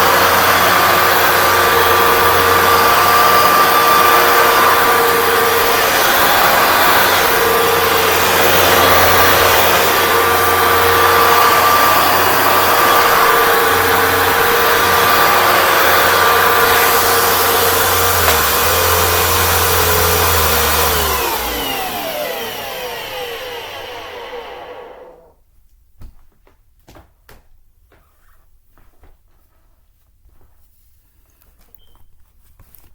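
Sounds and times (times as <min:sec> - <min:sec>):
carpet cleaner motor whining: 0:00.0 - 0:25.3
motor spinning down: 0:00.0 - 0:25.3.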